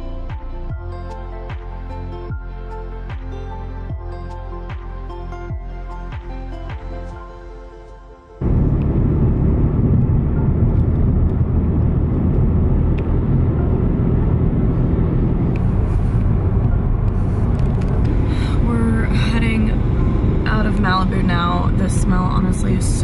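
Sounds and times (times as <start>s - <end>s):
car road and wind noise: 0.0s - 7.3s, 8.3s - 23.0s.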